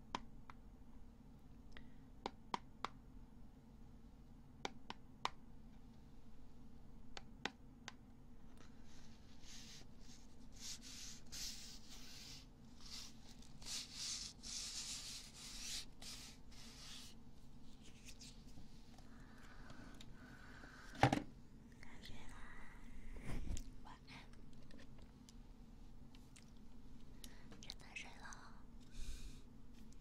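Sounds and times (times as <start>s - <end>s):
scratchy rubbing strokes: 8.8s - 18.5s.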